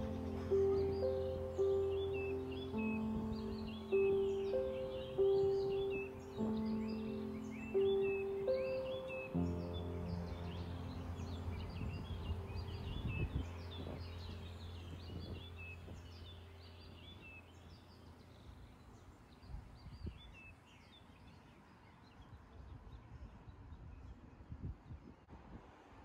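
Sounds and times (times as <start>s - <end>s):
low held music tone: 0.0s - 20.2s
small birds chirping: 0.0s - 25.2s
quiet street ambience: 0.0s - 26.0s.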